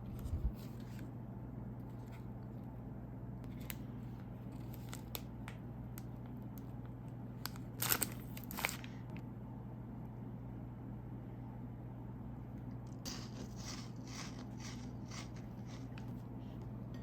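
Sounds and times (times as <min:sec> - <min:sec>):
steady low hum: 0:00.0 - 0:17.0
packaging crinkle and tear: 0:03.5 - 0:05.4, 0:07.4 - 0:09.0.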